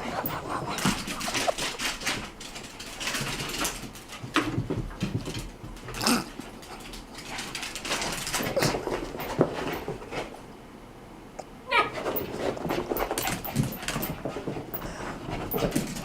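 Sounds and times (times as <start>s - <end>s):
pet animal sounds: 0.0s - 2.3s, 11.7s - 13.8s.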